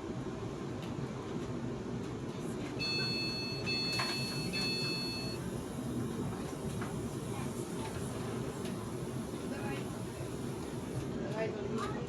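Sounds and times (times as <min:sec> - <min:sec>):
train carriage rumble: 0:00.0 - 0:12.0
high electronic warning tone: 0:02.8 - 0:05.4.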